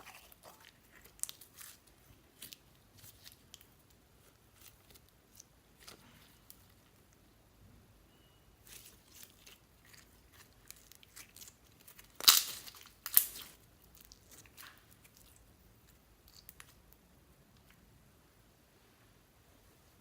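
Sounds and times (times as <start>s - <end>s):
slime squelching: 0.0s - 7.1s, 8.6s - 17.0s.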